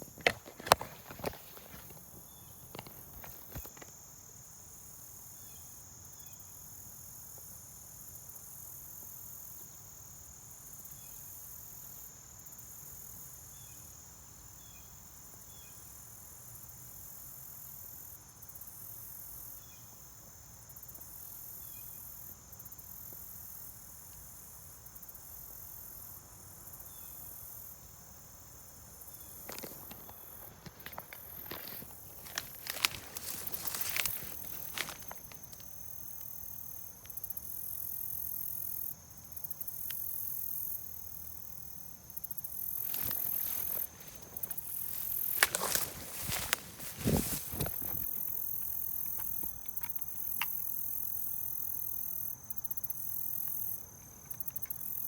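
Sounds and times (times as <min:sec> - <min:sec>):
insects trilling: 0:00.0 - 0:55.0
knocks and scuffs: 0:29.4 - 0:35.4, 0:42.9 - 0:48.2.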